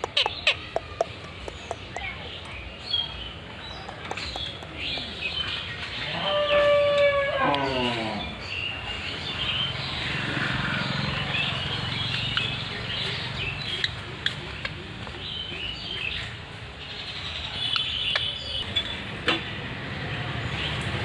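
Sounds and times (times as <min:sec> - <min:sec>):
parrots chirping and squawking: 0:00.0 - 0:02.1.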